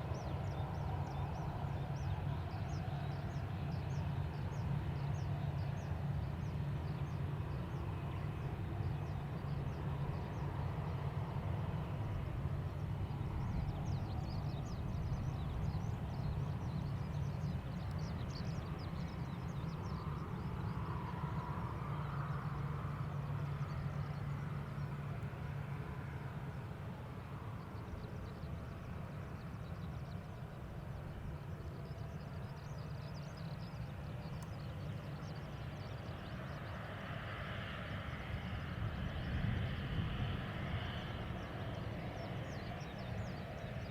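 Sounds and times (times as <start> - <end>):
faint light ticks: 17.7 - 19.0, 32.9 - 36.5.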